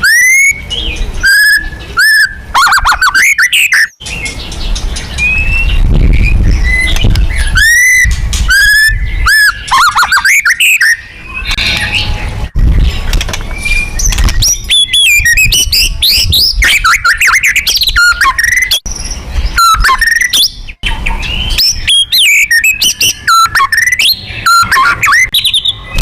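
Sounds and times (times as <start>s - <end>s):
songbird singing whistled notes: 0.0s - 26.0s.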